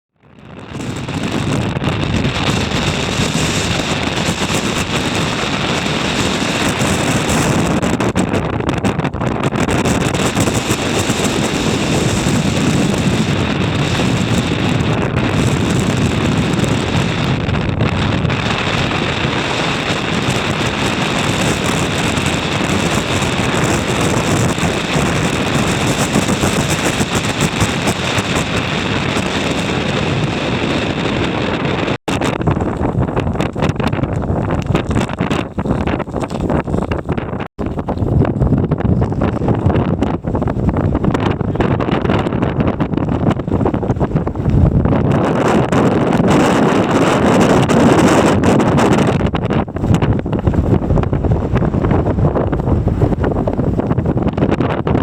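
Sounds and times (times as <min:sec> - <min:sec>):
gusty wind on microphone: 0:00.1 - 0:55.0.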